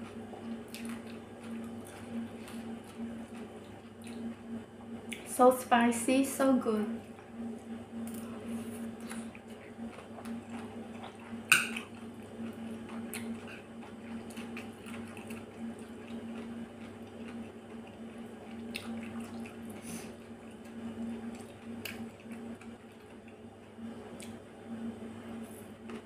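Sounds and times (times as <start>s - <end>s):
wet chewing mouth sounds: 0.0s - 4.4s, 8.0s - 23.4s
steady low hum: 0.0s - 26.0s.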